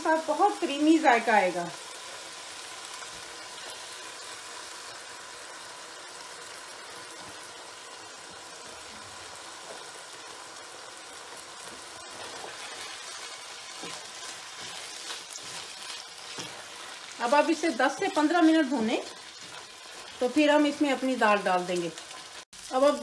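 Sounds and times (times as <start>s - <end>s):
chicken sizzling in a wok: 0.0s - 23.0s
wooden spatula stirring: 12.1s - 21.1s.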